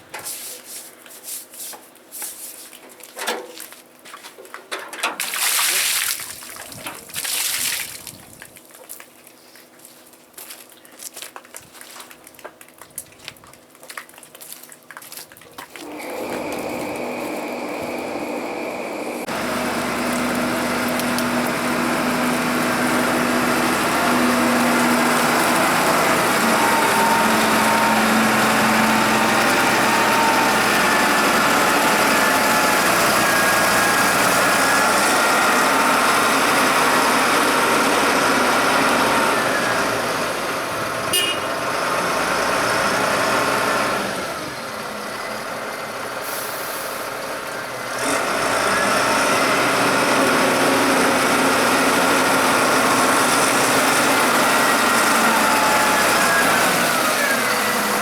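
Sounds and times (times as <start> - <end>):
tractor engine running: 15.8 - 58.0.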